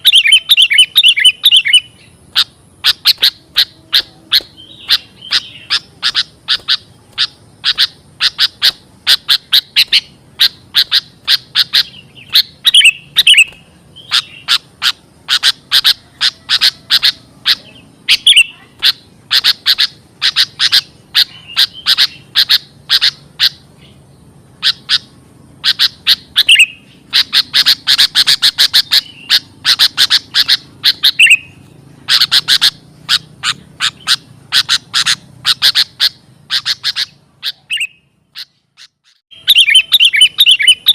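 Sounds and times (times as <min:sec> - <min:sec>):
bird sharp chip notes: 0:00.0 - 0:23.6.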